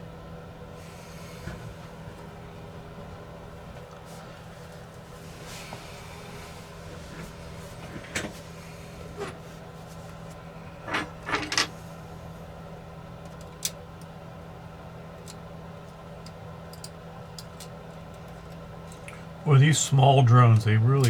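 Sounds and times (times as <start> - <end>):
steady low hum: 0.0 - 21.0
small clicks and scraping of parts: 10.3 - 11.8, 13.2 - 14.1, 15.2 - 19.2.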